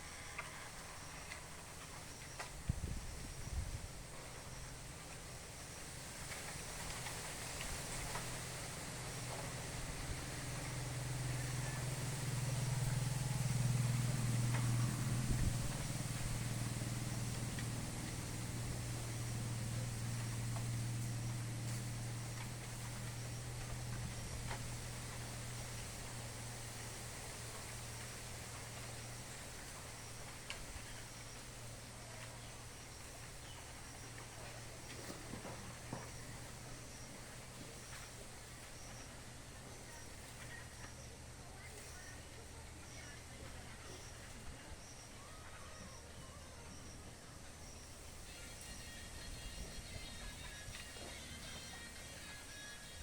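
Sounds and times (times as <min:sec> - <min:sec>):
faint steady hiss: 0:00.0 - 0:53.0
low engine hum: 0:00.0 - 0:53.0
faint high chirps: 0:27.9 - 0:53.0.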